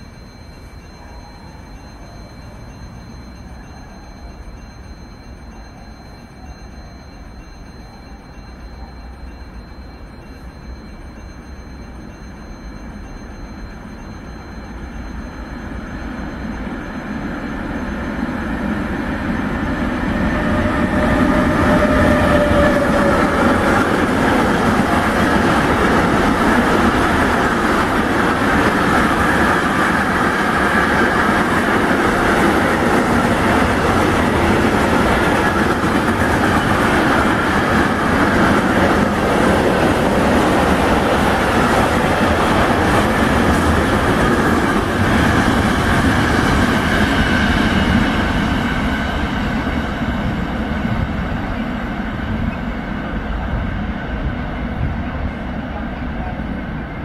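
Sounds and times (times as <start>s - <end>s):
train wheels rolling on rails: 0.0s - 57.0s
locomotive rumble: 18.1s - 57.0s.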